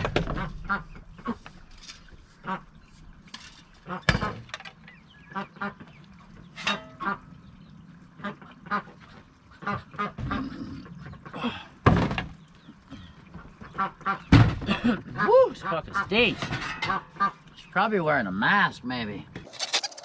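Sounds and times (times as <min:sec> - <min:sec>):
ducks quacking: 0:00.0 - 0:01.6, 0:02.3 - 0:02.9, 0:03.8 - 0:04.4, 0:05.2 - 0:06.0, 0:06.6 - 0:07.4, 0:08.1 - 0:11.6, 0:12.9 - 0:17.6.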